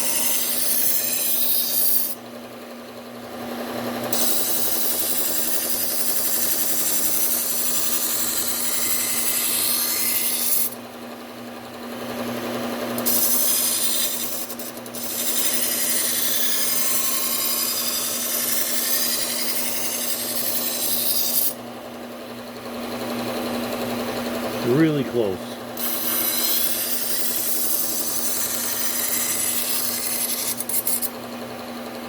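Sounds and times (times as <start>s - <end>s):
belt sander motor hum: 11.6s - 32.0s
knife grinding on belt: 25.8s - 31.1s.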